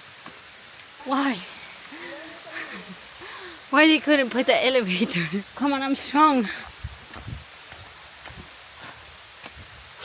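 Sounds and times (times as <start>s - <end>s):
steady background hiss: 0.0s - 10.0s
footsteps in flip-flops: 7.0s - 10.0s.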